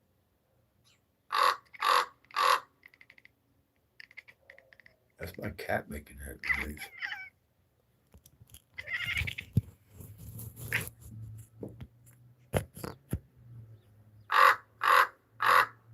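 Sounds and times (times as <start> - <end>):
raven cawing: 1.3 - 3.3, 14.3 - 15.9
cat vocalizing: 4.0 - 5.1, 6.4 - 7.4.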